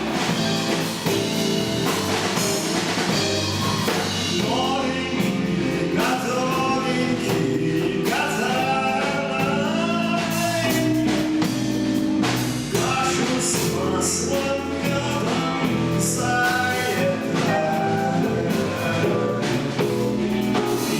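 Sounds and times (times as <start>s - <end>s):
drums: 0.0s - 20.9s
guitar: 0.0s - 20.9s
person singing: 3.8s - 11.7s, 12.6s - 20.9s.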